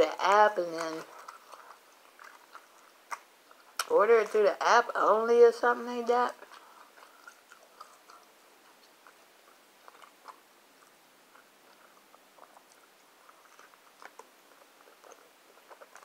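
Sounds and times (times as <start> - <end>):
chewing mouth clicks and smacks: 0.8 - 3.9, 6.4 - 16.0.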